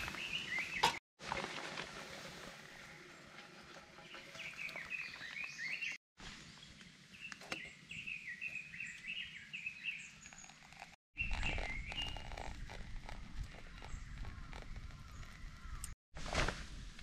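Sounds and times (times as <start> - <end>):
songbirds chirping: 0.0 - 1.0, 2.7 - 12.8.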